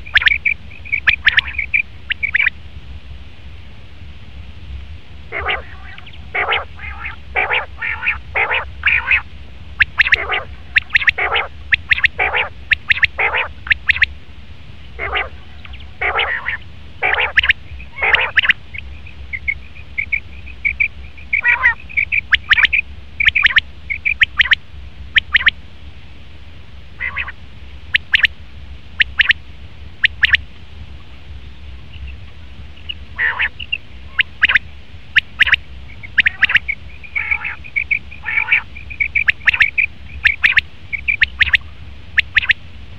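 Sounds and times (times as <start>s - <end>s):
quail calling: 0.0s - 2.5s, 5.3s - 14.1s, 15.0s - 24.6s, 25.2s - 25.5s, 27.0s - 27.4s, 28.0s - 28.3s, 30.0s - 30.4s, 32.8s - 34.6s, 35.2s - 42.6s.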